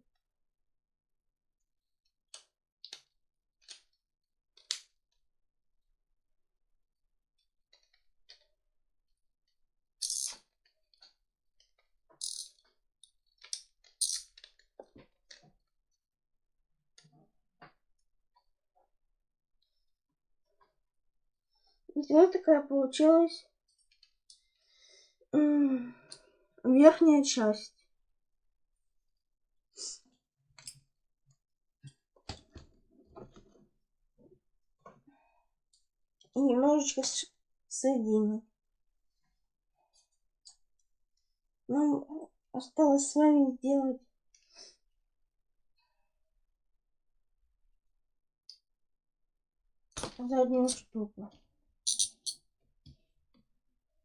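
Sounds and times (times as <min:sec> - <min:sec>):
plastic puzzle segments clicking: 0:10.0 - 0:10.4, 0:12.2 - 0:12.5, 0:51.9 - 0:52.4.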